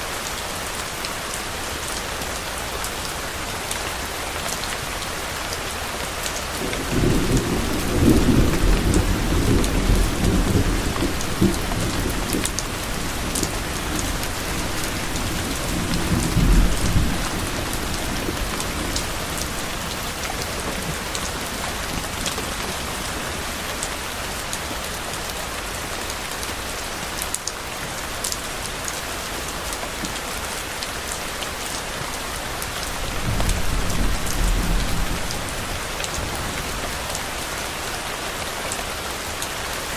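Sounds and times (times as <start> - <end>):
steady rain falling: 0.0 - 39.9
rolling thunder: 6.6 - 22.6, 33.0 - 36.7.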